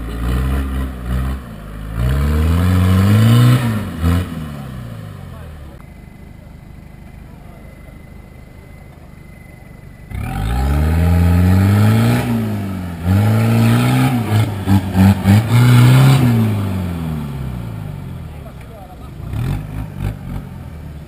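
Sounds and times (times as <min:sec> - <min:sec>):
engine revving hard: 0:00.0 - 0:05.4, 0:10.1 - 0:18.2, 0:19.1 - 0:20.7.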